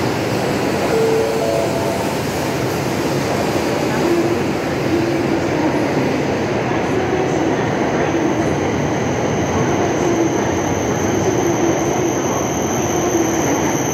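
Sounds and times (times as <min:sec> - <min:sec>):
train rushing past: 0:00.0 - 0:07.7
thin high tone: 0:00.8 - 0:02.8.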